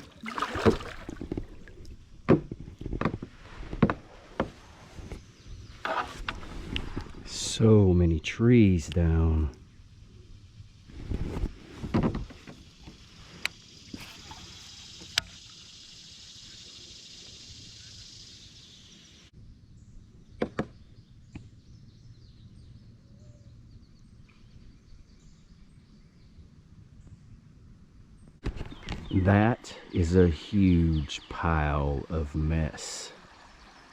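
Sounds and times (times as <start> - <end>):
steady high hiss: 12.3 - 19.3.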